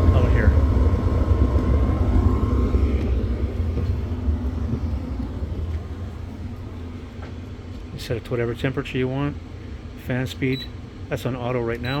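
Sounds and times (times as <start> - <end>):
furnace blower rumbling: 0.0 - 12.0.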